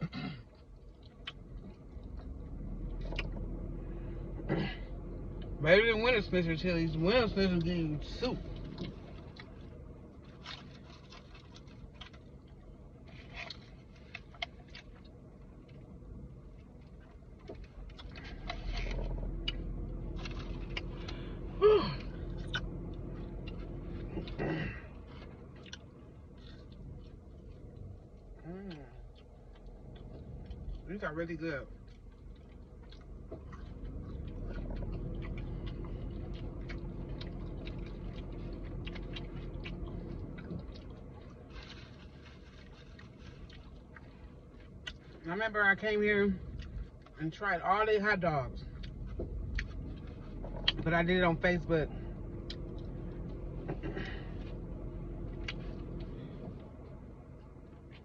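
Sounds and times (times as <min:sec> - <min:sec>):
low steady hum: 0:00.0 - 0:58.0
steady low rumble: 0:00.0 - 0:58.0
chewing clicks and smacks: 0:00.6 - 0:03.5, 0:10.3 - 0:15.8, 0:22.2 - 0:24.4, 0:25.1 - 0:30.9, 0:31.7 - 0:41.4.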